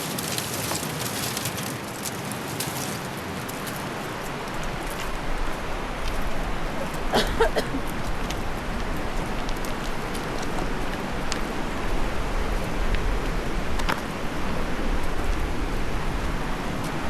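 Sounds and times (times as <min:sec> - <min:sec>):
rushing mountain river: 0:00.0 - 0:17.0.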